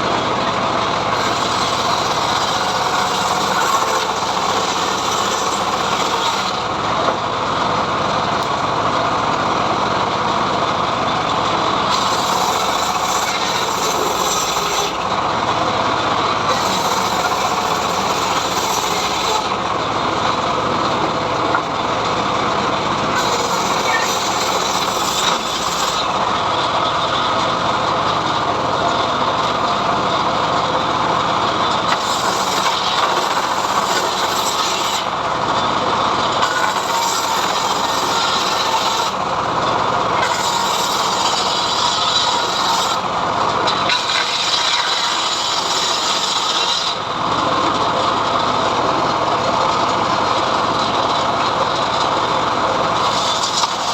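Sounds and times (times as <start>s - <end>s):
saw blade rasping through wood: 0.0s - 6.8s, 11.8s - 27.5s, 31.6s - 47.2s, 50.8s - 53.9s.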